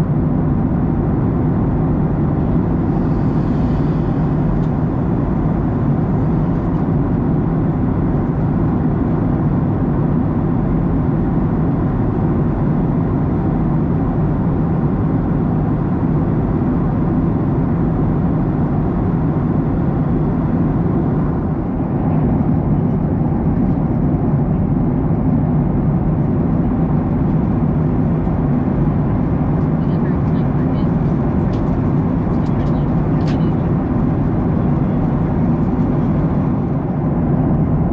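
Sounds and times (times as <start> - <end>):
airflow rush in cabin: 0.0 - 37.9
jet engines droning: 0.0 - 37.9.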